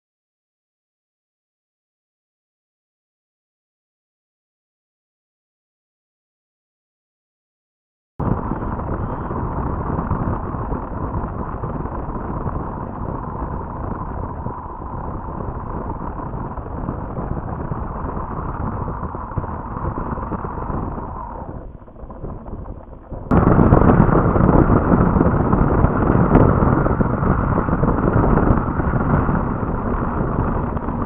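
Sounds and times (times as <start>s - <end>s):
wind buffeting microphone: 8.2s - 31.0s.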